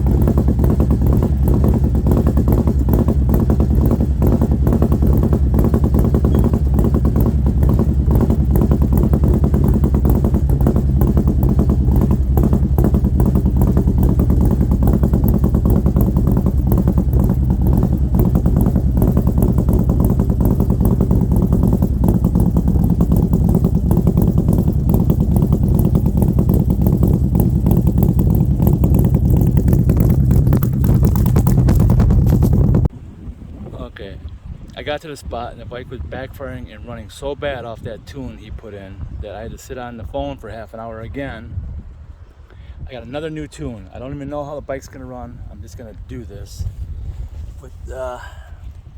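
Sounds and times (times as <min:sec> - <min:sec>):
motorcycle engine idling: 0:00.0 - 0:32.9.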